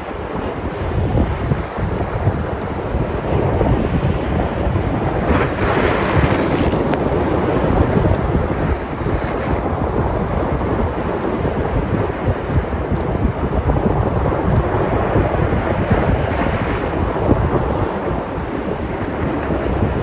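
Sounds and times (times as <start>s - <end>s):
sea surf washing in: 0.0s - 20.0s
wind buffeting microphone: 0.0s - 20.0s
wave breaking: 0.6s - 20.0s.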